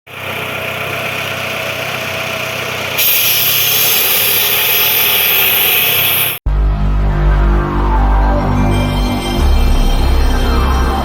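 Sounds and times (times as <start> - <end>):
engine running: 0.1 - 11.0
strong hiss: 3.0 - 6.4.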